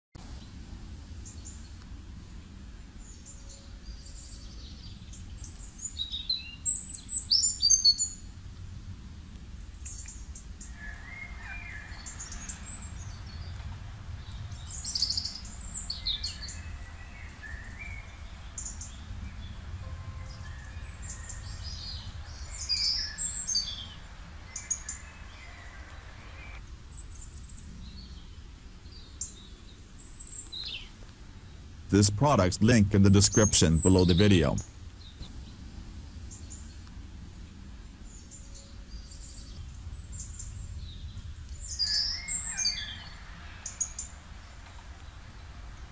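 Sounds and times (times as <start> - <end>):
birds singing and chirping: 3.0 - 8.3, 9.8 - 28.1, 38.1 - 44.1
low steady rumble: 12.0 - 26.6.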